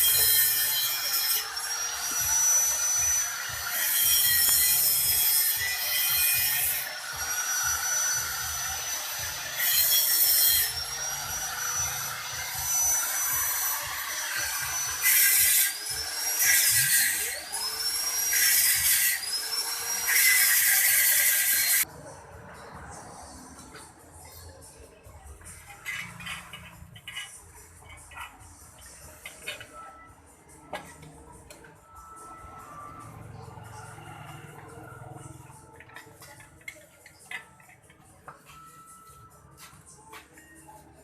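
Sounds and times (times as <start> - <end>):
grinder scraping metal: 0.0 - 21.9, 25.5 - 29.8
power tool grinding metal: 0.0 - 21.9.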